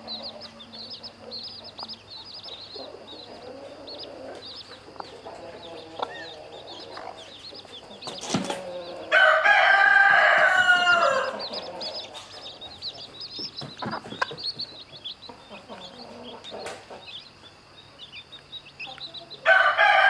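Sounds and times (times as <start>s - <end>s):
hen clucking: 0.0s - 19.6s
chicks peeping: 0.0s - 20.0s
rooster crowing: 8.7s - 12.1s, 19.4s - 20.0s.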